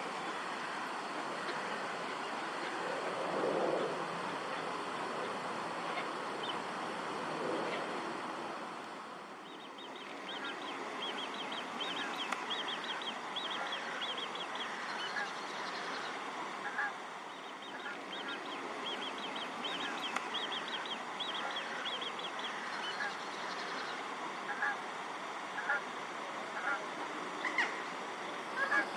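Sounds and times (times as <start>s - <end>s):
waterfowl calls: 0.0s - 2.8s, 9.8s - 28.9s
birds chirping: 9.4s - 24.8s.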